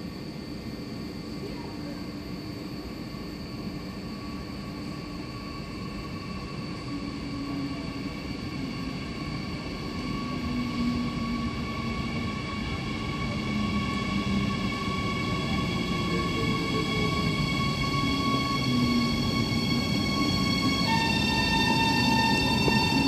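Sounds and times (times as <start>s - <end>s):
high-pitched whine: 0.7s - 23.0s
train rumble approaching: 8.6s - 23.0s.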